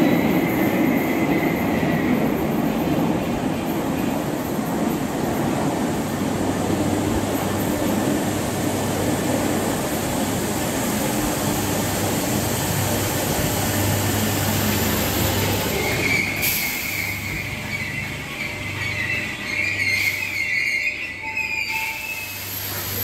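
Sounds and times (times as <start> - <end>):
train rumble: 0.0 - 23.0
brake squeal: 15.6 - 23.0.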